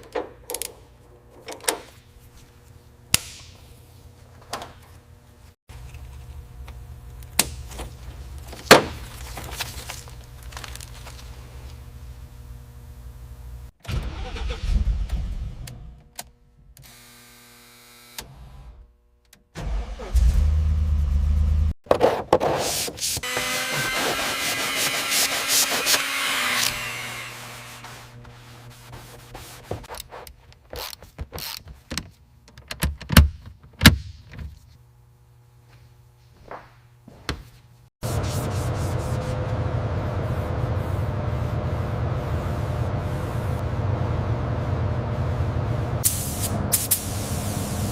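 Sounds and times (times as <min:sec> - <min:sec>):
steady low hum: 0:37.7 - 0:47.9
hiss: 0:46.0 - 0:47.9.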